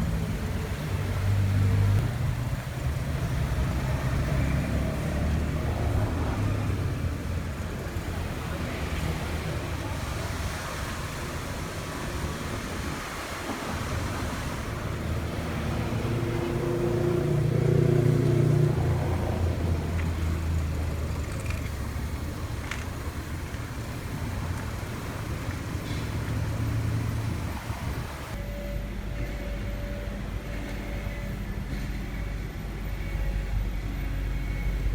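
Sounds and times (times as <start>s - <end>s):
car engine running: 14.7s - 28.7s
humming tone: 28.4s - 34.9s.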